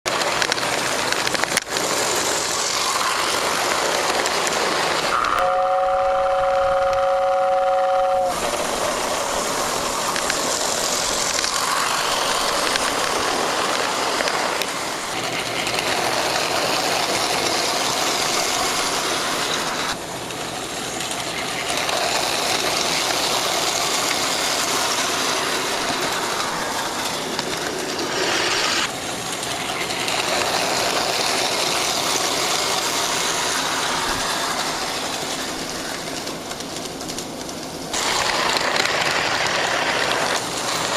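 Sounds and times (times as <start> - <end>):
model train whirring on track: 0.0 - 40.9
model train two-note horn: 5.1 - 8.6.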